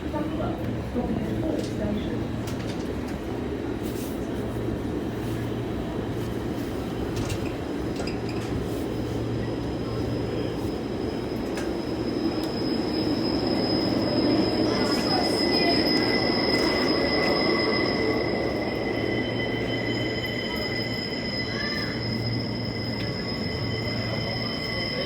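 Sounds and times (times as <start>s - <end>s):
electric train rumble: 0.0s - 25.0s
high steady squeal: 9.5s - 25.0s.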